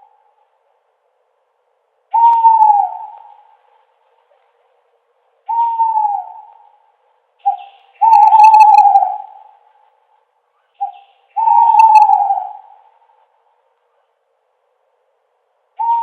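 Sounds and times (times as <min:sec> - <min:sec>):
owl hooting: 0:02.1 - 0:03.8, 0:05.4 - 0:09.9, 0:10.6 - 0:13.3, 0:15.8 - 0:16.0.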